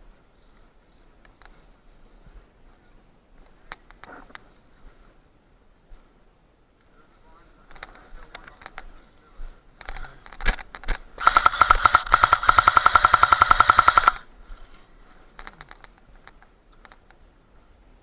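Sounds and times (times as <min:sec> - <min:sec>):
faint clicks: 0:00.4 - 0:01.6, 0:03.4 - 0:04.5, 0:07.7 - 0:08.9, 0:15.4 - 0:17.2
airsoft rifle firing: 0:11.2 - 0:14.2.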